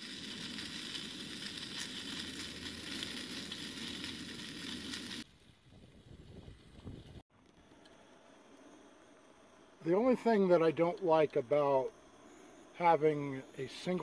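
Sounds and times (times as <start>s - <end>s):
food sizzling in a frying pan: 0.0s - 5.3s.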